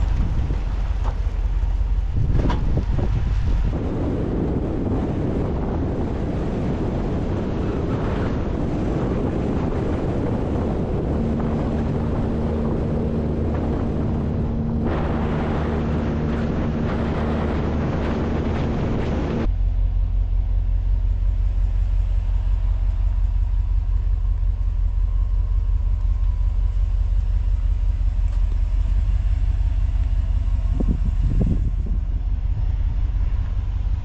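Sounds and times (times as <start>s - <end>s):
wind on microphone: 0.0s - 19.6s, 28.6s - 34.0s
road noise: 0.0s - 34.0s
truck engine: 0.0s - 34.0s
steady hum: 1.3s - 34.0s.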